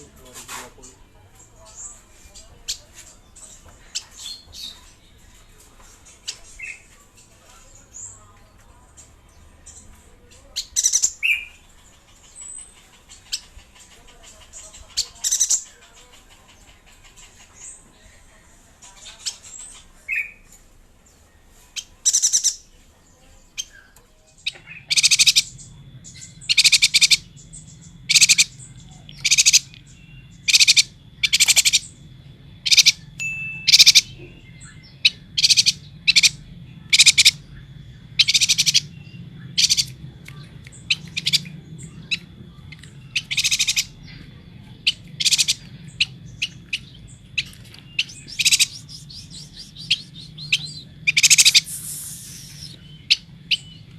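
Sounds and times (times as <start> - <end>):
bird chirping high calls: 10.5 - 14.0, 21.8 - 22.7, 23.6 - 53.9
low steady hum: 23.9 - 53.9.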